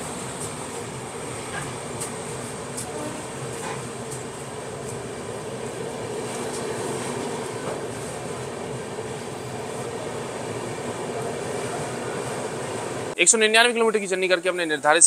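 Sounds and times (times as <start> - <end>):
train wheels rumbling on rails: 0.0 - 13.2.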